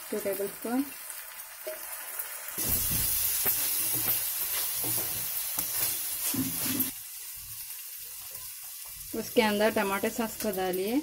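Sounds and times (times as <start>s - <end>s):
vegetables sizzling in hot oil: 0.0s - 11.0s
spoon scraping pan: 3.3s - 7.0s.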